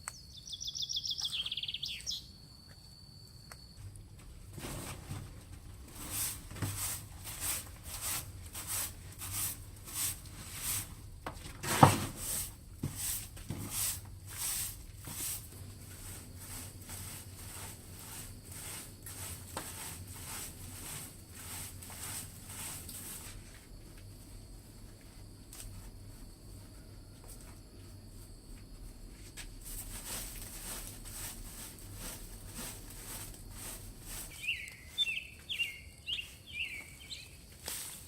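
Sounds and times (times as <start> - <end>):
scraping strokes: 4.6 - 11.0, 11.6 - 23.5, 29.6 - 38.0.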